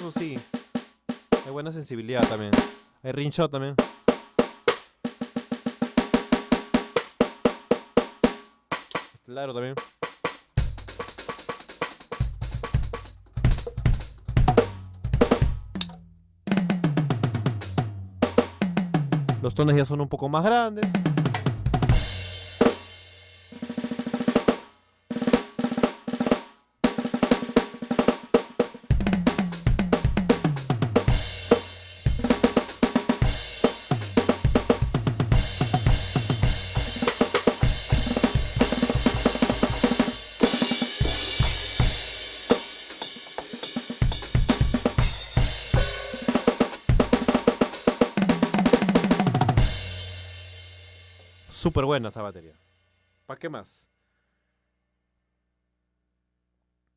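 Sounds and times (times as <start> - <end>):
electronic drum kit playing: 0.0 - 0.6, 10.6 - 19.6, 20.8 - 22.9, 28.2 - 50.4.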